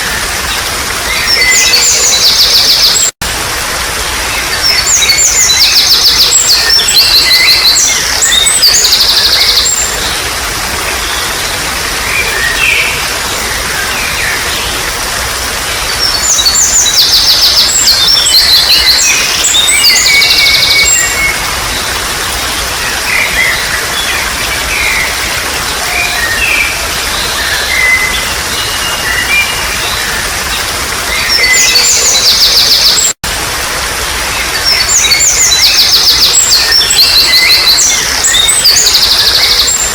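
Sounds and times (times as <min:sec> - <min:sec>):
trickling water: 0:00.0 - 0:39.9
songbirds trilling: 0:04.2 - 0:33.2, 0:34.2 - 0:39.9.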